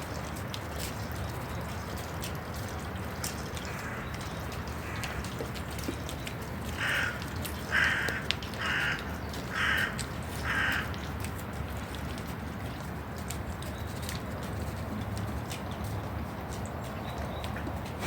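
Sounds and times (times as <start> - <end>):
crow cawing: 6.8 - 10.9.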